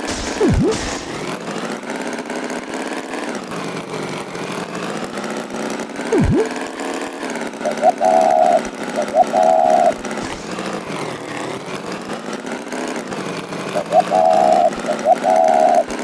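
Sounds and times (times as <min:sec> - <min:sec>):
cartoon tractor engine: 0:00.0 - 0:01.7, 0:06.0 - 0:06.7, 0:07.6 - 0:11.4.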